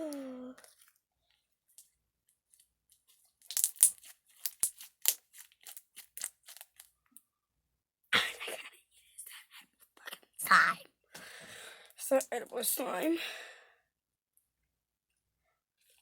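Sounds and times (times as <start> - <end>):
slime crackling and popping: 3.4 - 6.9.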